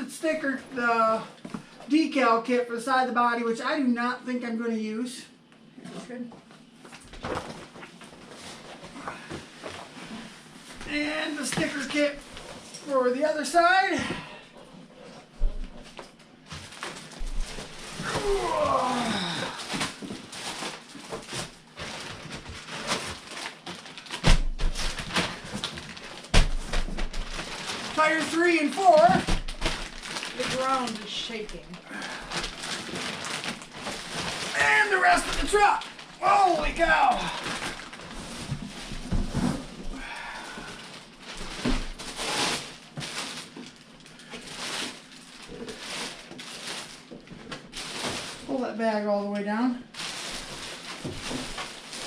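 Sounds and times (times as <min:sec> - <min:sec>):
packaging rustling and clatter: 0:14.7 - 0:48.6, 0:49.9 - 0:52.0.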